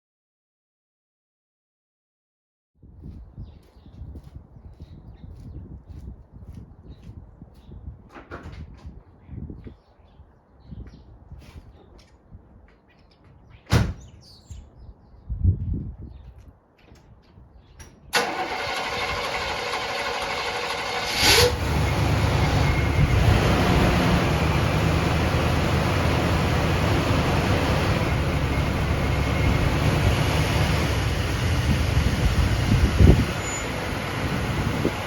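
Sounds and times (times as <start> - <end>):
car engine starting and idling: 18.1 - 35.0
starter motor cranking: 18.2 - 21.6.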